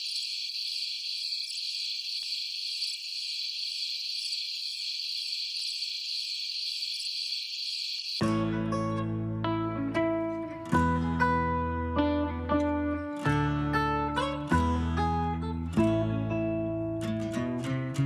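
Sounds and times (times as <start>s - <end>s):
crickets chirping: 0.0s - 8.2s
plucked guitar music: 8.2s - 18.0s.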